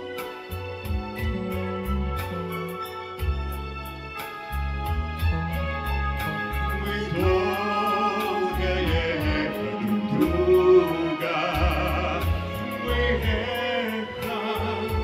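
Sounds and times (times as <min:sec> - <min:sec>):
bass notes: 0:00.0 - 0:15.0
light ticking beat: 0:00.0 - 0:15.0
person singing with vibrato: 0:06.7 - 0:15.0.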